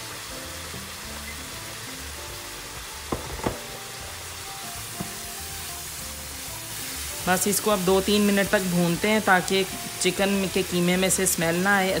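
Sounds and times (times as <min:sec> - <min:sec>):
meat sizzling in a pan: 0:00.0 - 0:12.0
sharp knocks: 0:03.1 - 0:03.8.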